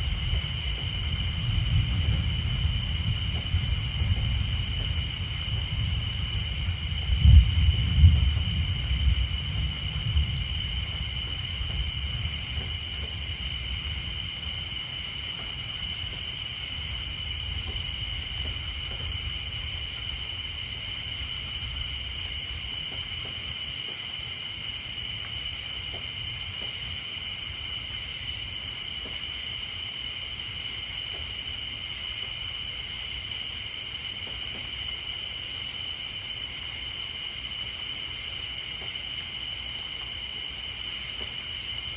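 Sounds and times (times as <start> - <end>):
low thunder rumble: 0.0 - 23.6
tree frogs and insects trilling: 0.0 - 41.9.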